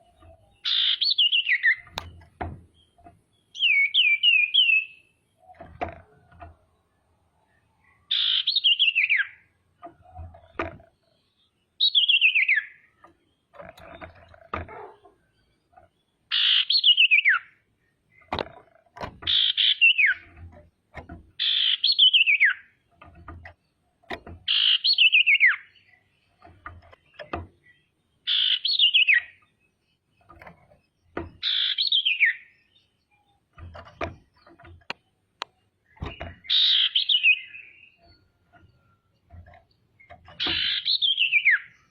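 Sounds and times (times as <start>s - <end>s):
faint clicks and soft knocks: 1.8s - 3.4s, 5.4s - 8.0s, 9.6s - 11.6s, 12.8s - 16.2s, 18.0s - 19.4s, 20.1s - 21.4s, 22.8s - 24.5s, 25.8s - 28.1s, 29.4s - 31.5s, 33.0s - 36.5s, 37.9s - 40.8s.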